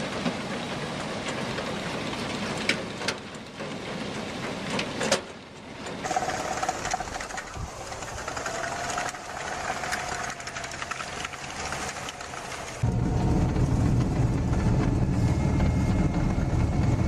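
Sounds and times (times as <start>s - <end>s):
machine mechanical clatter: 1.0s - 17.0s
steady rising whine: 6.2s - 17.0s.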